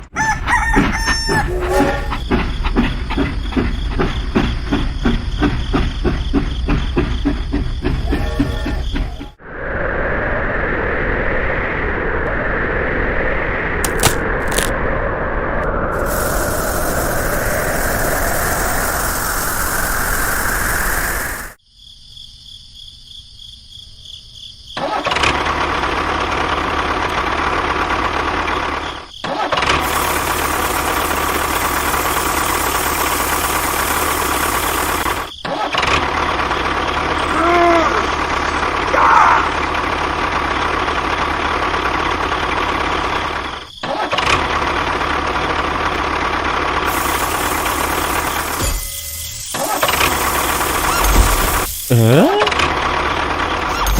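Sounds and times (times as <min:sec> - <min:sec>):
motor running: 0:29.8 - 0:35.3, 0:46.8 - 0:53.9.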